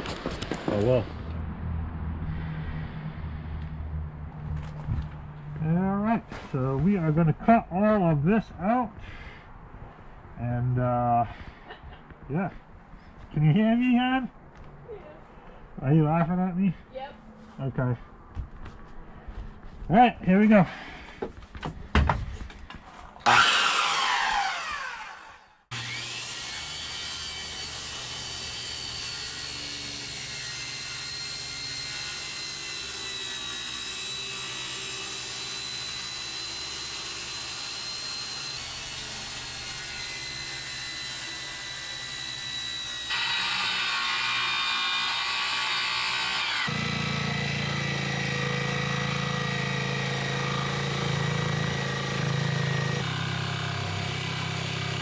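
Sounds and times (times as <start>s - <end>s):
power saws cutting: 0.0s - 1.4s, 23.2s - 55.0s
circular saw spinning down: 23.2s - 55.0s.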